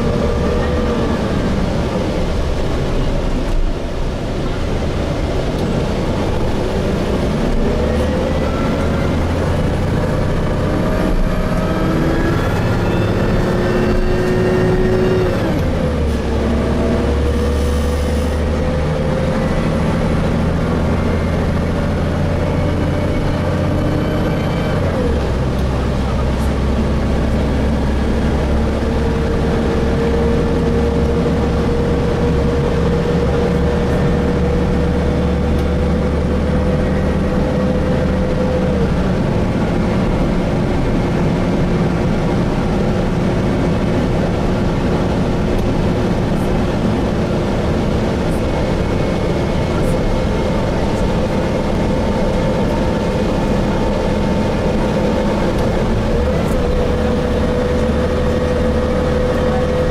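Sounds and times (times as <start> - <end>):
bus engine and transmission whine: 0.0 - 59.9.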